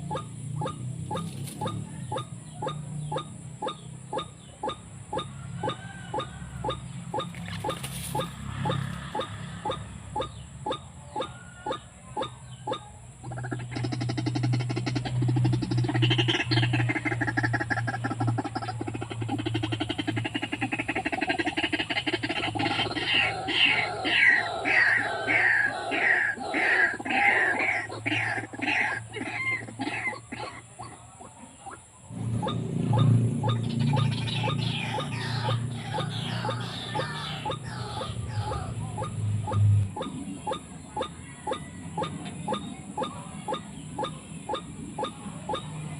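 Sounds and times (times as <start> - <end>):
steady low hum: 0.0 - 45.9
waterhen croaking calls: 0.0 - 45.9
low hum: 32.0 - 40.4.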